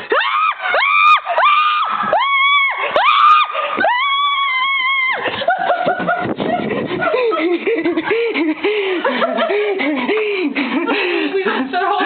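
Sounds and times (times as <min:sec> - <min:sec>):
woman screaming in fright: 0:00.1 - 0:05.2.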